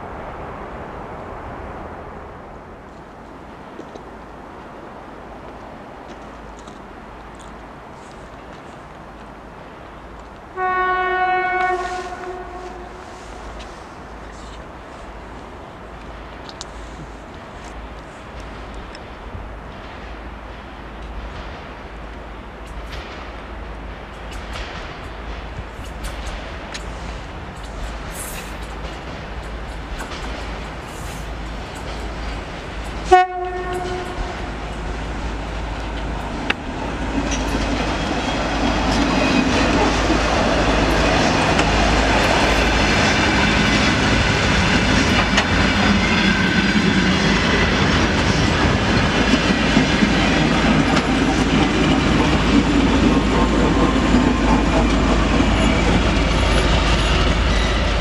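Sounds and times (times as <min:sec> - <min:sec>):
diesel locomotive passing: 0:00.0 - 0:58.0
train horn toot: 0:10.6 - 0:13.3, 0:33.0 - 0:34.5
wheels clattering over rail joints: 0:15.9 - 0:58.0.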